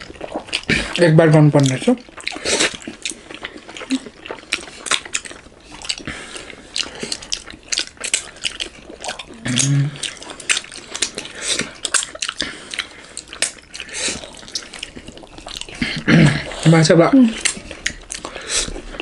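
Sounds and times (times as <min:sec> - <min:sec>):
slurping: 0:00.0 - 0:19.0
wet chewing and lip smacks: 0:00.0 - 0:19.0
person humming mmm: 0:09.1 - 0:10.1.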